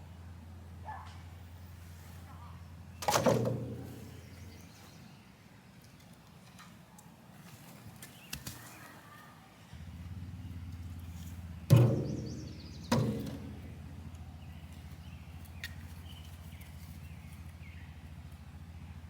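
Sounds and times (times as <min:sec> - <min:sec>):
birds chirping: 0:02.3 - 0:06.2, 0:08.0 - 0:18.3
loud sharp bangs: 0:11.7 - 0:13.8.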